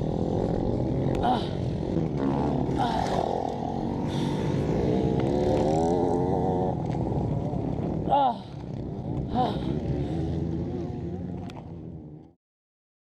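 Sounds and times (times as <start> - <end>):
motocross bike engine revving: 0.0 - 12.3.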